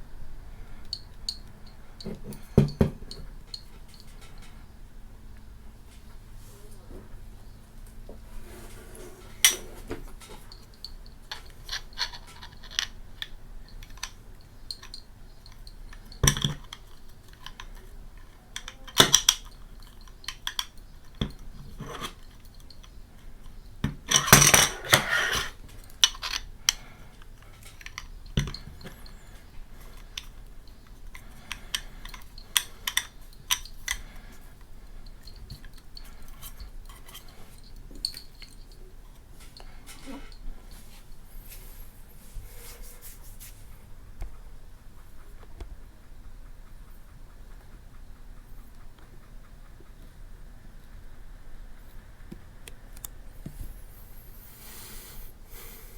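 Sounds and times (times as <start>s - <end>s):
hardware clattering: 2.0s - 4.5s, 9.0s - 13.0s, 23.8s - 26.9s
small hard parts clicking: 9.4s - 40.4s.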